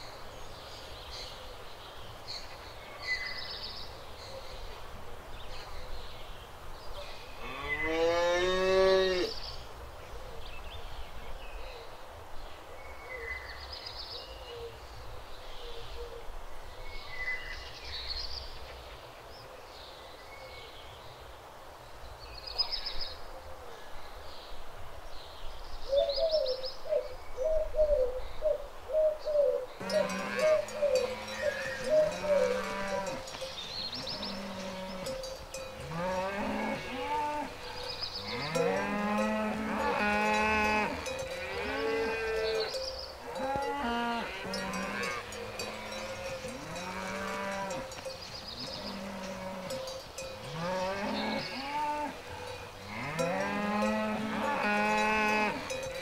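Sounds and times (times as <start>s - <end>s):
small birds chirping: 25.4s - 56.0s
cow mooing: 29.8s - 33.3s, 34.0s - 35.2s, 35.8s - 47.9s, 50.4s - 55.8s.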